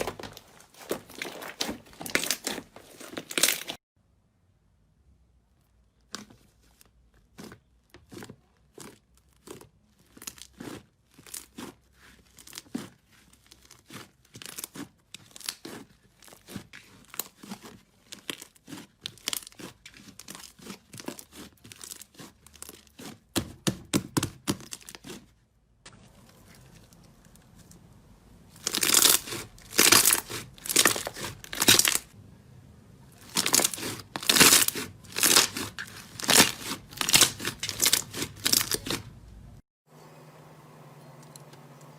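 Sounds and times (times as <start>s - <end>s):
slime crackling and popping: 12.4s - 23.4s, 28.5s - 32.2s, 33.2s - 39.1s.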